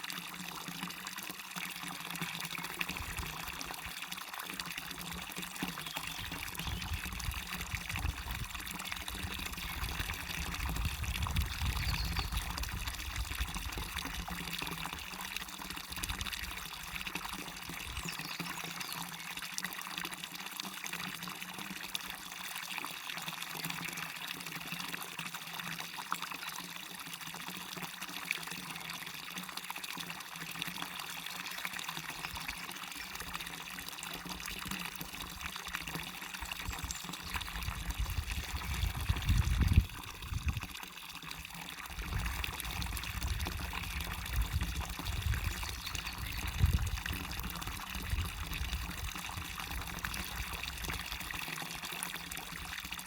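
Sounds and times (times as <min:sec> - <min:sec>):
small waterfall splashing: 0:00.0 - 0:53.0.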